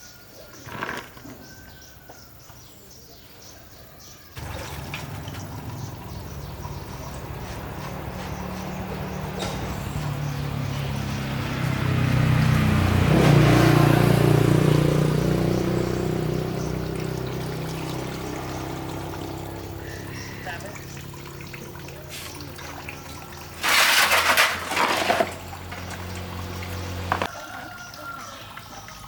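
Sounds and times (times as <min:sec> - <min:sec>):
engine running: 0:04.4 - 0:27.3.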